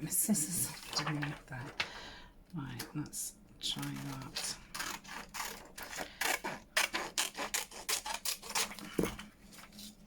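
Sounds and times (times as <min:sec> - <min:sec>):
scissors cutting paper: 0:03.7 - 0:09.0.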